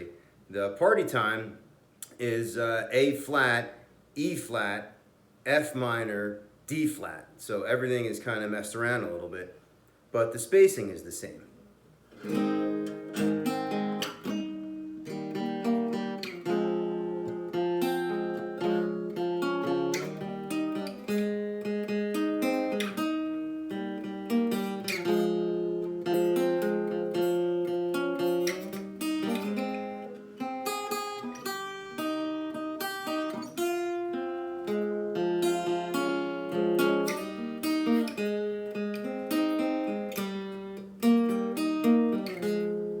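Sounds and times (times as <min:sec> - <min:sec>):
acoustic guitar strumming: 0:12.1 - 0:43.0.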